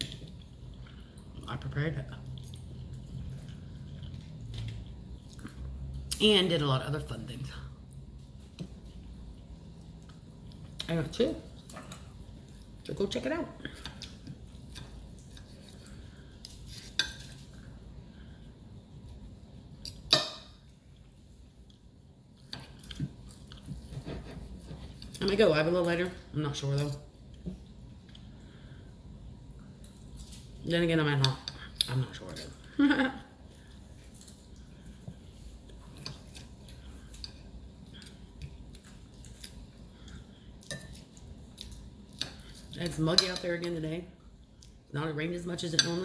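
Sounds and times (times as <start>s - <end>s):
chewing: 2.3s - 5.8s.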